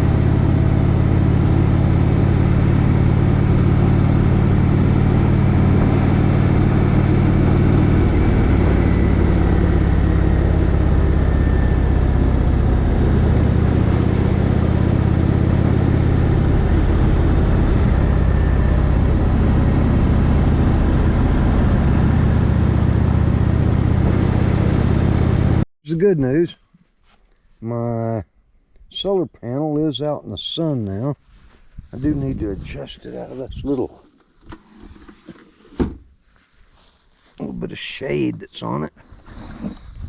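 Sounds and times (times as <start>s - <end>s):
motorcycle engine droning: 0.0s - 25.6s.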